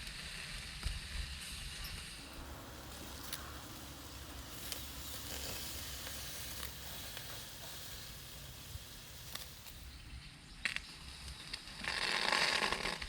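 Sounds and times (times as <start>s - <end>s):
clams sizzling on a grill: 0.1s - 10.2s.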